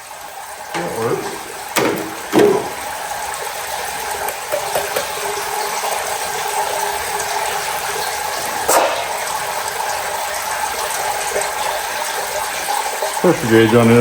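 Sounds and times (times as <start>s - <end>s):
pressure washer spraying water: 0.8s - 2.9s
sharp knock: 1.8s - 2.8s.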